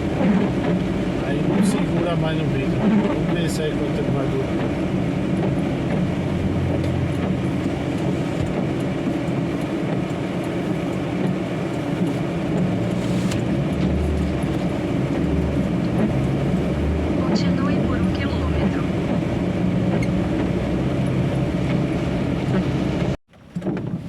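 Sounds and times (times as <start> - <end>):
road noise: 0.0 - 24.0
truck engine drone: 12.5 - 23.2.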